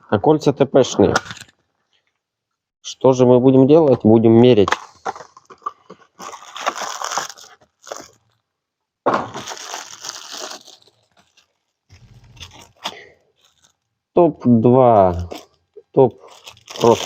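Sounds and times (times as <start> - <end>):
packaging rustling and crinkling: 4.7 - 8.5, 9.1 - 14.0, 15.0 - 17.0.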